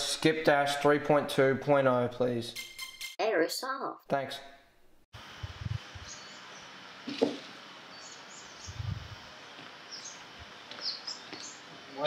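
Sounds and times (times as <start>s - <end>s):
high bird chirps: 2.5s - 3.2s, 6.0s - 6.7s.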